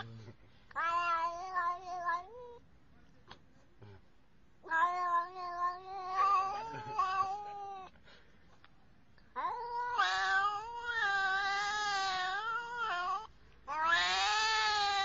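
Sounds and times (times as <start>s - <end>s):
animal yowling: 9.4s - 15.0s.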